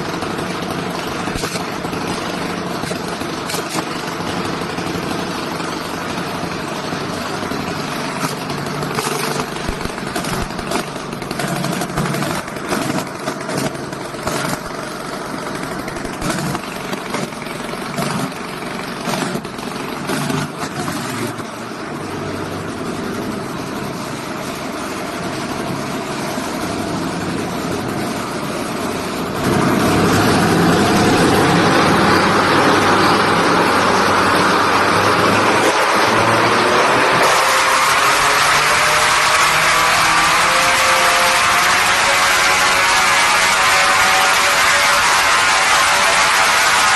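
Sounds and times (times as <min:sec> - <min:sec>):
small engine running: 0:00.0 - 0:46.9.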